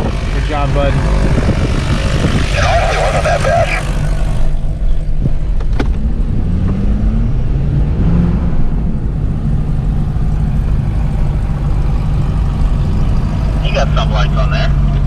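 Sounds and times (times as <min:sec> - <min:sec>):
piston engine idling: 0:08.9 - 0:15.0.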